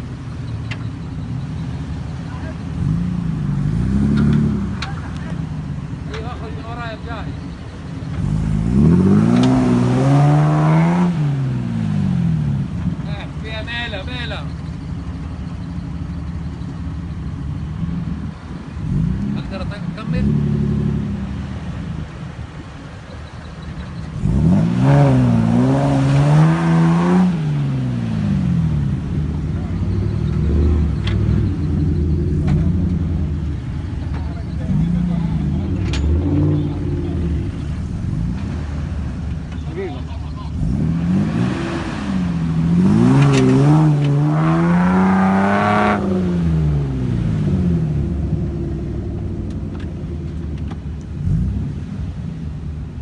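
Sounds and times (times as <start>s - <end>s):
vehicle engine revving hard: 2.7s - 5.3s, 8.1s - 12.7s, 24.1s - 39.2s, 40.5s - 50.5s, 51.2s - 52.4s.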